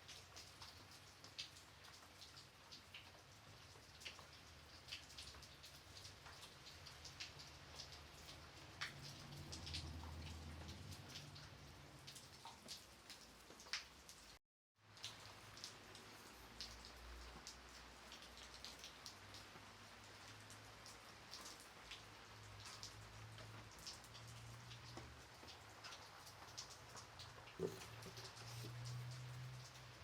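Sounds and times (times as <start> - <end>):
light rain hiss: 0.0 - 30.0
raindrops ticking: 0.0 - 30.0.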